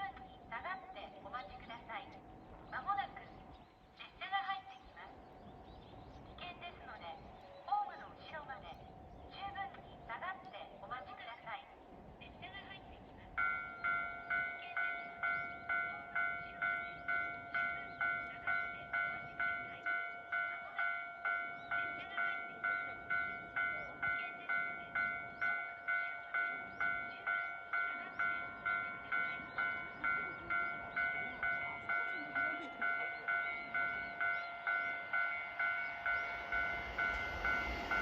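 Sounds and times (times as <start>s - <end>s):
level-crossing alarm bell: 13.4s - 38.0s.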